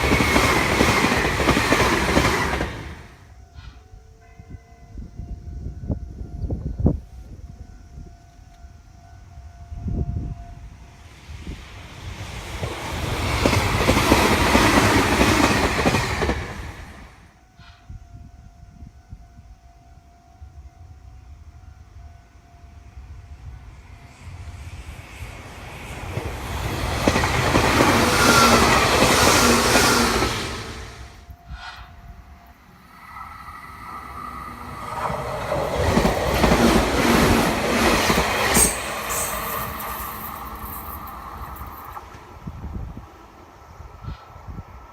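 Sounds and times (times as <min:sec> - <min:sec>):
train wheels clacking on rails: 0:00.0 - 0:03.8, 0:11.7 - 0:17.9, 0:24.6 - 0:32.0, 0:33.8 - 0:42.3
high squeal: 0:38.2 - 0:42.0.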